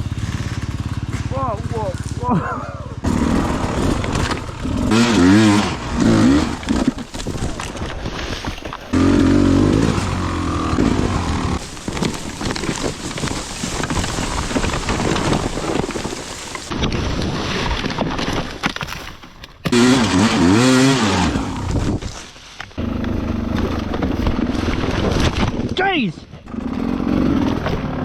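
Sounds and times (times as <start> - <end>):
dirt bike engine revving: 0.0 - 7.0, 8.9 - 12.4, 19.7 - 22.0, 22.8 - 24.2, 26.5 - 28.0
rough knocks and clatters: 3.0 - 20.1.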